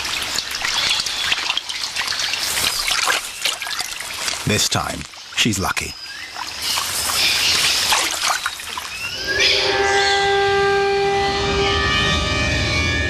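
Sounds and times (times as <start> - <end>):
water splashing: 0.0 - 9.2.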